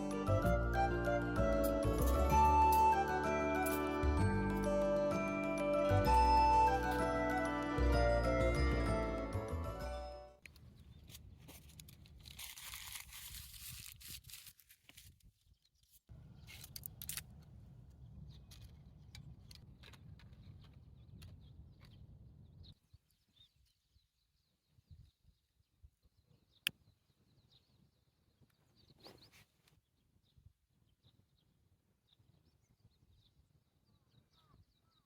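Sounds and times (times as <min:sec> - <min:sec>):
packaging crinkling and tearing: 0:11.1 - 0:15.3
faint bird chirps: 0:32.1 - 0:35.0.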